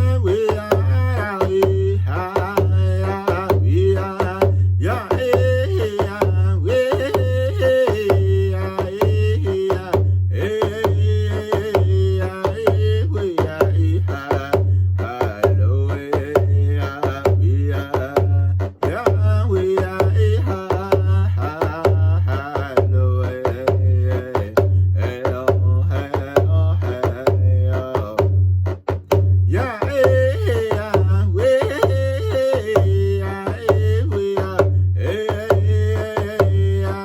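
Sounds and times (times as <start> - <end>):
young man singing vocables: 0.0 - 28.3, 29.4 - 37.0
drum beaten at a steady pulse: 0.0 - 37.0.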